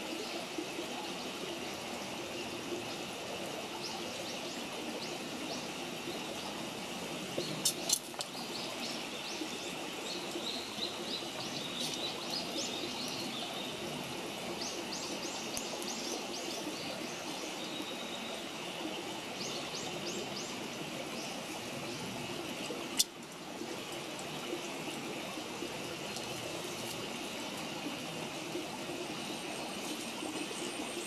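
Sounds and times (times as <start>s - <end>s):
small birds chirping: 7.3s - 23.2s.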